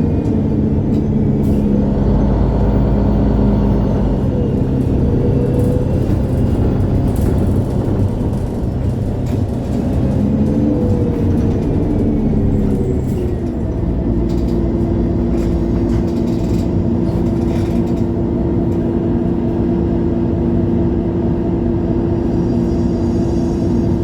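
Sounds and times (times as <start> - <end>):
bus drivetrain hum: 0.0 - 24.0.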